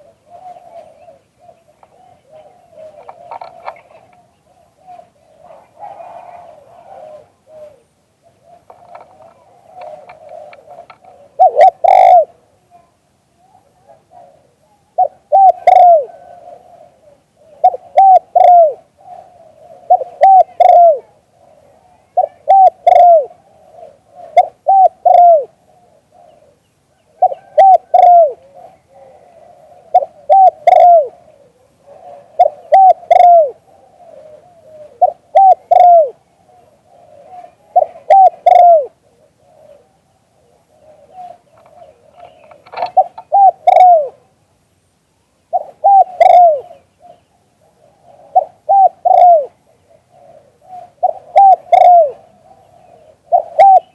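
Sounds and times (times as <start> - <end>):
dove cooing: 0.0 - 44.4, 45.5 - 53.9.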